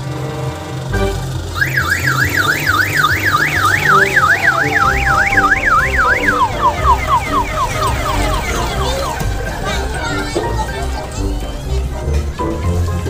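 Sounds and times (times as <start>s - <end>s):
electronic siren warbling: 1.5s - 9.9s
music with steady bass line: 2.0s - 13.0s.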